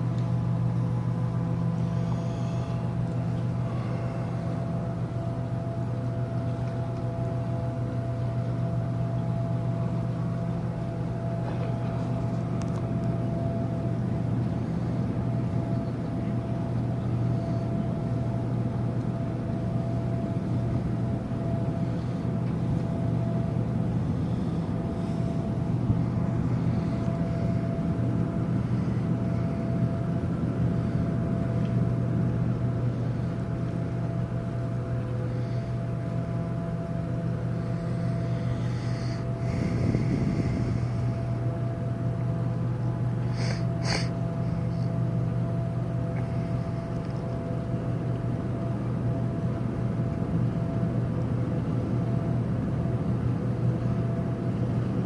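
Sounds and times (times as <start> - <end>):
faint steady machine whine: 0.0 - 55.0
ship engines droning: 0.0 - 55.0.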